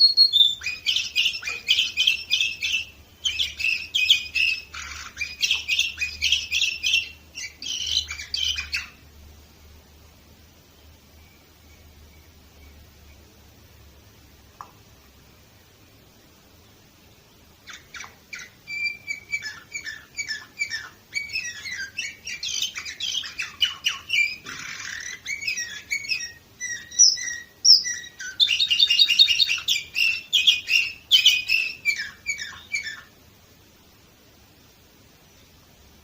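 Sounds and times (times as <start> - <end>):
canary singing: 0.0 - 9.1, 17.5 - 33.2.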